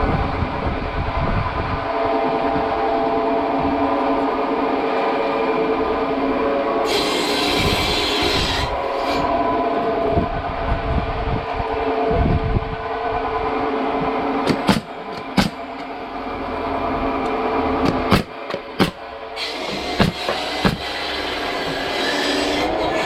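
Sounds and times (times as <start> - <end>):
sawmill machinery humming: 1.6 - 23.0
sharp knocks: 14.4 - 15.6, 17.8 - 19.0, 19.6 - 21.0.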